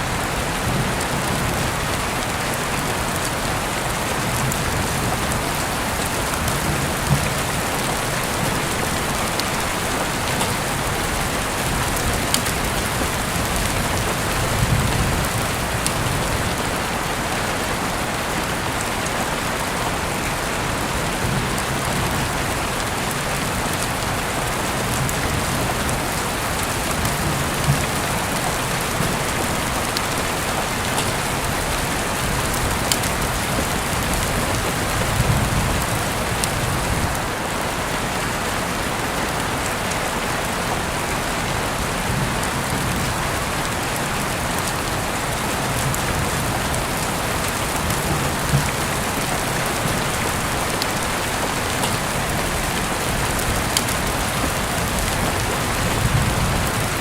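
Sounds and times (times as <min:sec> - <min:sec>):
heavy rain hissing: 0:00.0 - 0:57.0
raindrop ticks: 0:24.9 - 0:37.2, 0:45.8 - 0:56.8.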